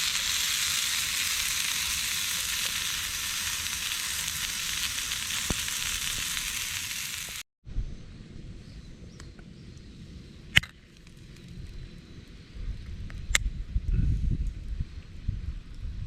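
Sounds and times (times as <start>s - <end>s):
food sizzling and crackling: 0.0s - 7.4s.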